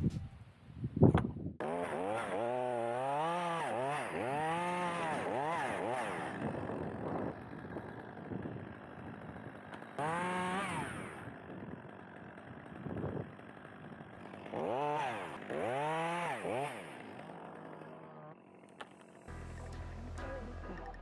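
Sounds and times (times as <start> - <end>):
chainsaw revving: 1.6 - 21.0.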